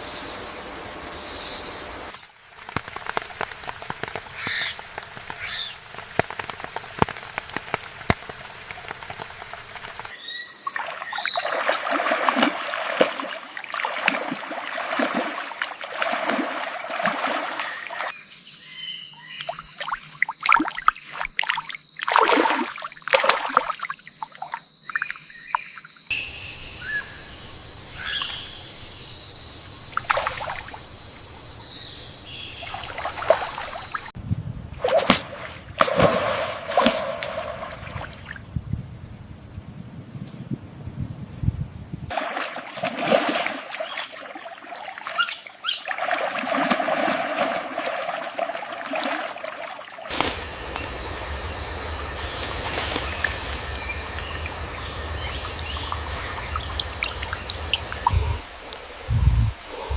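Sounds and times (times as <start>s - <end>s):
trickling and splashing water: 2.1s - 18.2s, 19.5s - 25.9s, 29.9s - 30.8s, 32.6s - 34.2s, 42.1s - 59.7s
bird calls: 4.3s - 5.9s, 24.8s - 29.1s, 43.8s - 45.9s, 50.1s - 58.5s.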